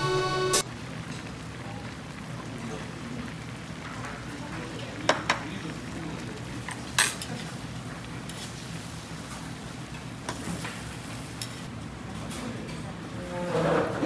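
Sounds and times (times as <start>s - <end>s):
low hum: 0.0s - 0.6s
utensils clinking against dishes: 6.7s - 7.4s.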